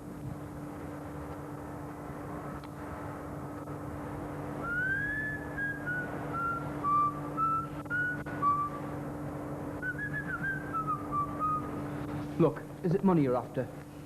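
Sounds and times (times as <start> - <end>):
low steady hum: 0.0 - 14.0
person whistling a tune: 4.6 - 8.8, 9.8 - 11.7.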